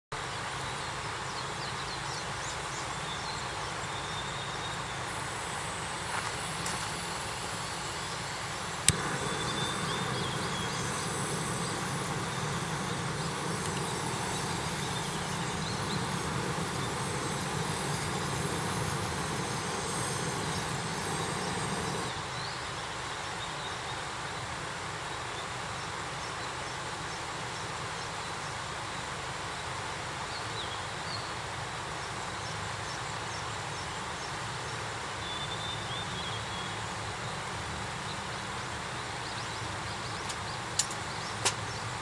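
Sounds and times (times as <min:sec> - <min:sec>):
high insect drone: 0:04.4 - 0:22.2
short bird chirps: 0:06.9 - 0:22.1
sharp crack: 0:08.4 - 0:19.3.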